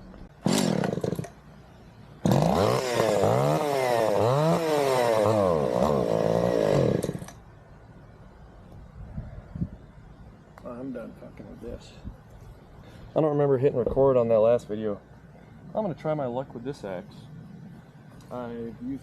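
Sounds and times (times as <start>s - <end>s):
chainsaw engine surging: 0.4s - 1.4s, 2.2s - 7.4s.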